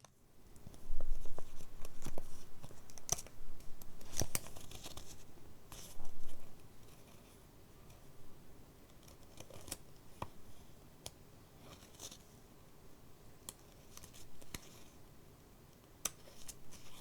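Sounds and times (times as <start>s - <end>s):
paper pages rustling: 0.6s - 7.2s.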